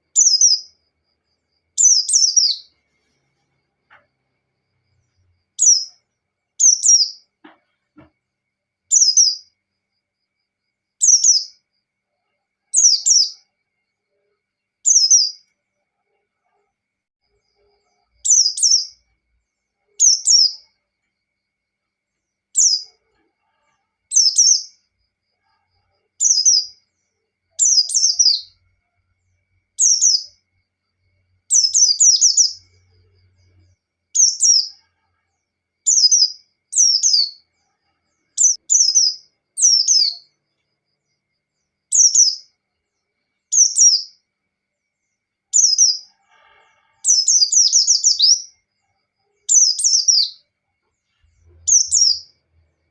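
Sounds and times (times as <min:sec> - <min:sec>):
small bird twittering: 0:00.2 - 0:00.8, 0:01.7 - 0:02.7, 0:05.6 - 0:06.0, 0:06.6 - 0:07.3, 0:08.9 - 0:09.5, 0:11.0 - 0:11.6, 0:12.8 - 0:13.4, 0:14.9 - 0:15.4, 0:18.2 - 0:19.0, 0:20.0 - 0:20.7, 0:22.6 - 0:23.0, 0:24.1 - 0:24.8, 0:26.2 - 0:26.8, 0:27.6 - 0:28.6, 0:29.8 - 0:30.4, 0:31.5 - 0:32.8, 0:34.2 - 0:34.8, 0:35.9 - 0:37.4, 0:38.4 - 0:40.3, 0:41.9 - 0:42.5, 0:43.5 - 0:44.2, 0:45.6 - 0:46.1, 0:47.1 - 0:48.6, 0:49.5 - 0:50.4, 0:51.6 - 0:52.4.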